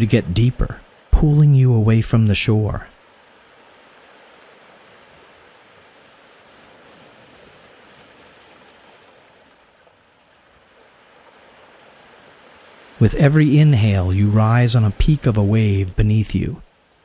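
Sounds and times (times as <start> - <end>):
ocean surf hissing: 11.4 - 17.0.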